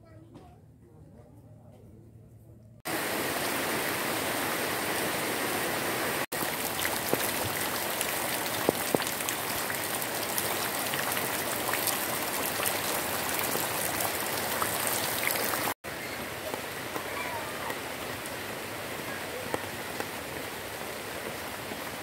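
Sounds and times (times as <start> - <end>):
heavy rain on leaves and lawn: 2.9 - 22.0
water streaming through grass: 2.9 - 22.0.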